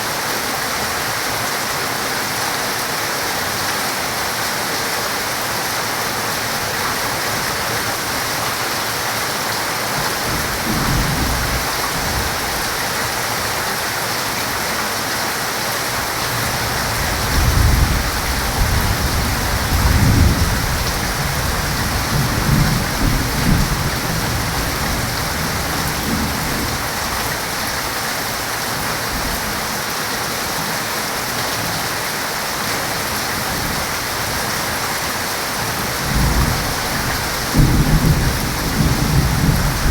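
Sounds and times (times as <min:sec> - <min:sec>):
heavy rain hissing: 0:00.0 - 0:39.9
rolling thunder: 0:16.4 - 0:27.2, 0:36.0 - 0:39.9.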